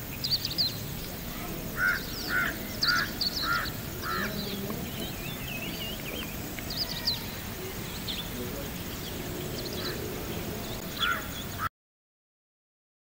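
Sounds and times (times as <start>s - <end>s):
small birds chirping and warbling: 0.0s - 11.7s
bird short repeated calls: 1.8s - 11.7s.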